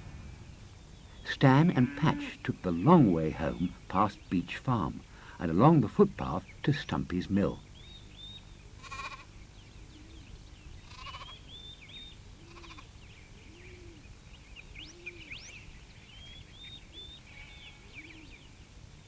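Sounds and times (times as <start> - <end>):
birdsong high chirps: 0.0 - 19.0
sheep bleating: 1.4 - 3.8, 8.8 - 9.3, 10.9 - 11.3.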